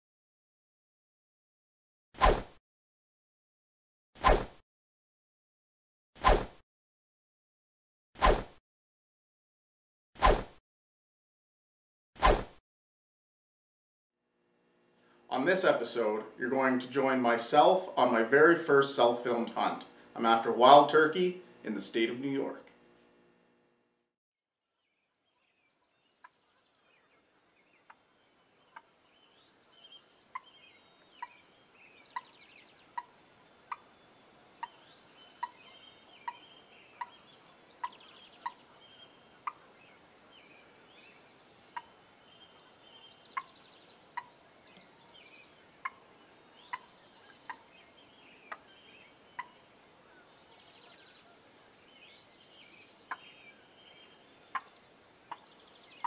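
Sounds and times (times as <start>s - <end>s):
songbirds singing faintly: 24.8s - 56.0s
turkey calling: 29.7s - 34.0s, 34.6s - 40.6s, 41.7s - 44.4s, 45.0s - 51.7s, 52.8s - 53.4s, 54.5s - 55.5s.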